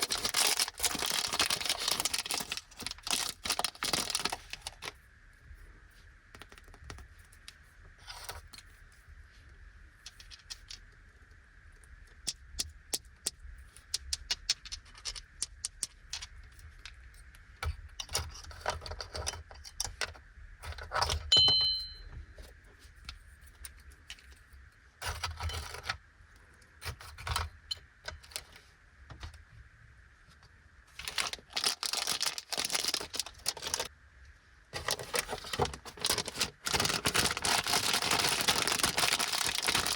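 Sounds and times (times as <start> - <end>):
plastic wrapper crinkling: 0.0 - 5.0, 31.0 - 33.9, 34.8 - 39.9
ringing clink: 21.3 - 22.1.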